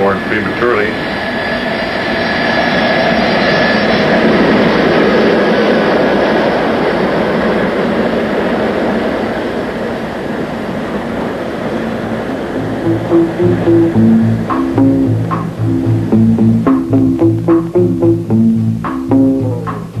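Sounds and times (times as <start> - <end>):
jet engines roaring with whine: 0.0 - 12.9.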